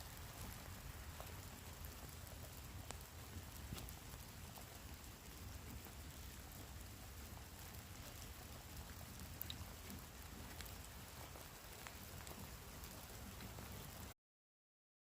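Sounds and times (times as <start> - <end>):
light rain pattering: 0.0 - 14.2.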